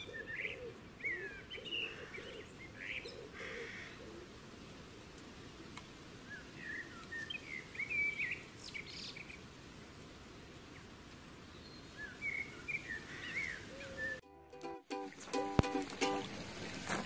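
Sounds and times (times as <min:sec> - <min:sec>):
small birds chirping and warbling: 0:00.0 - 0:04.0, 0:06.3 - 0:09.5, 0:11.5 - 0:14.2
steady low background noise: 0:00.0 - 0:17.0.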